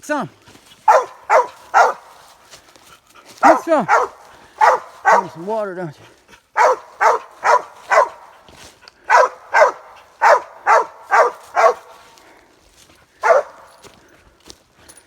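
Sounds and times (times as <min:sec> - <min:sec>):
dog barking: 0:00.8 - 0:02.4, 0:03.4 - 0:05.5, 0:06.6 - 0:08.5, 0:09.1 - 0:12.2, 0:13.2 - 0:13.8.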